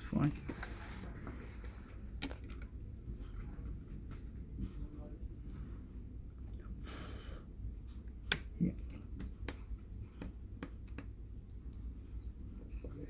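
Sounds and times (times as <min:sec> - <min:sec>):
steady low hum: 0:00.0 - 0:13.0
laptop parts clicking and tapping: 0:08.2 - 0:11.9.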